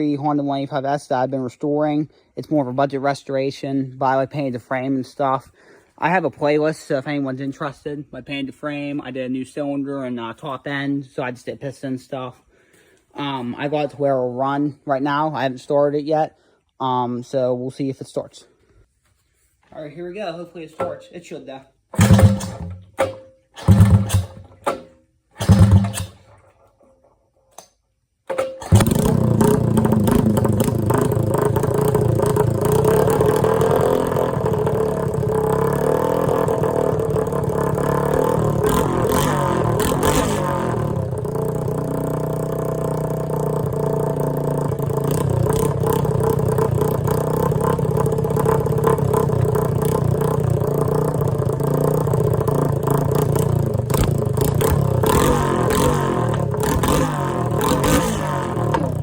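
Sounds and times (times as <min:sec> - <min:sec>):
single-cylinder engine running: 0:22.0 - 0:22.8, 0:23.6 - 0:24.5, 0:25.4 - 0:26.2, 0:28.6 - 0:59.0.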